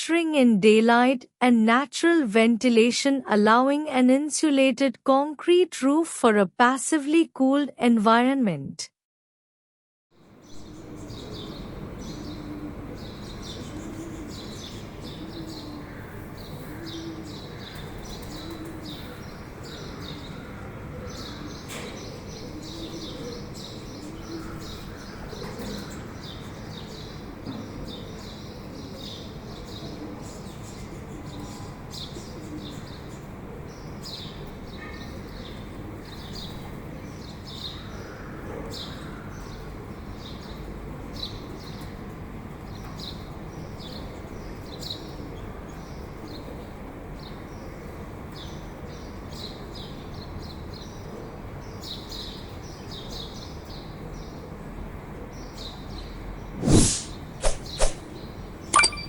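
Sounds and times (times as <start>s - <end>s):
birds chirping: 58.8s - 59.0s.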